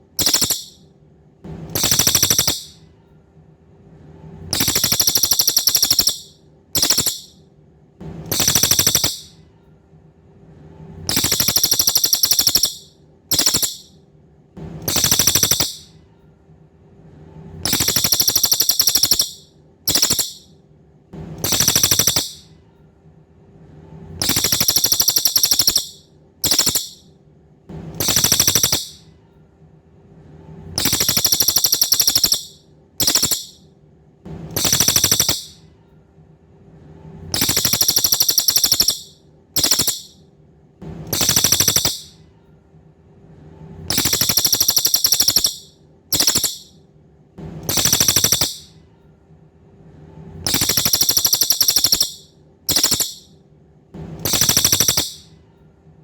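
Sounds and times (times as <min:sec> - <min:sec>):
songbird buzzing trills: 0:00.0 - 0:00.8, 0:01.8 - 0:02.8, 0:04.6 - 0:07.3, 0:08.3 - 0:09.3, 0:11.1 - 0:13.9, 0:14.9 - 0:15.9, 0:17.6 - 0:20.5, 0:21.4 - 0:22.4, 0:24.2 - 0:27.0, 0:28.0 - 0:29.0, 0:30.8 - 0:33.6, 0:34.6 - 0:35.6, 0:37.4 - 0:40.2, 0:41.1 - 0:42.1, 0:43.9 - 0:46.7, 0:47.7 - 0:48.7, 0:50.5 - 0:53.3, 0:54.3 - 0:55.2
faint steady hum: 0:00.0 - 0:56.0.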